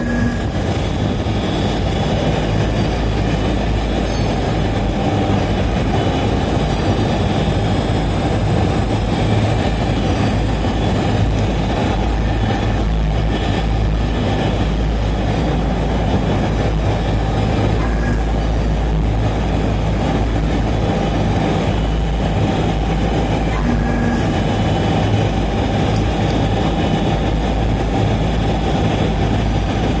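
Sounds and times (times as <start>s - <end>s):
furnace burner rumbling: 0.0s - 30.0s
low hum: 0.0s - 30.0s.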